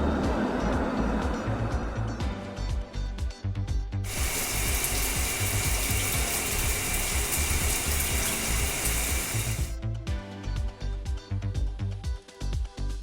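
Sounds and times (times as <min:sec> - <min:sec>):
background music: 0:00.0 - 0:13.0
hissing water spray: 0:04.1 - 0:09.8
rapid ratchet-like clicking: 0:04.1 - 0:09.8.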